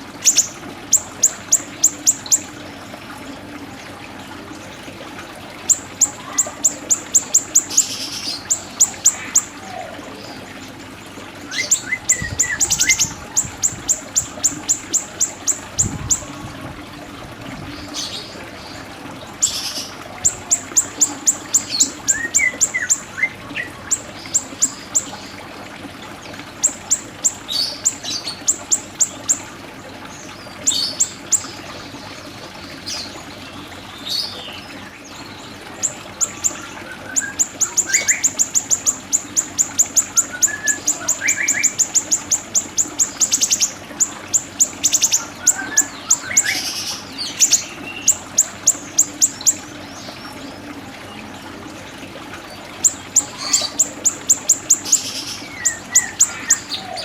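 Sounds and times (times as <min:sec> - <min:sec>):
bird high-pitched chips: 0:35.8 - 0:49.6, 0:52.9 - 0:57.0.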